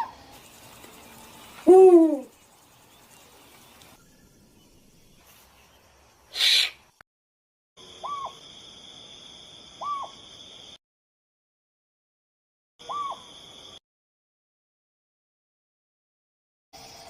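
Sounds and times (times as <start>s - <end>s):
owl hooting: 1.6s - 2.3s, 6.3s - 6.8s, 8.0s - 8.4s, 9.8s - 10.2s, 12.8s - 13.3s.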